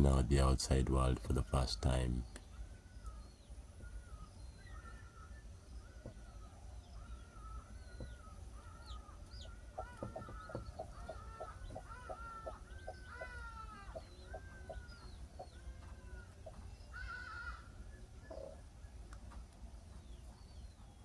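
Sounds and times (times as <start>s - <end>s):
chickens clucking: 7.1s - 20.9s.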